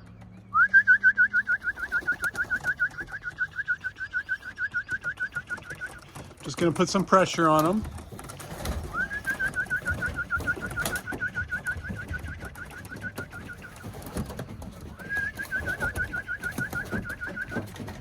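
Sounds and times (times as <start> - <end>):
bird trilling: 0.0 - 6.3, 8.8 - 14.2.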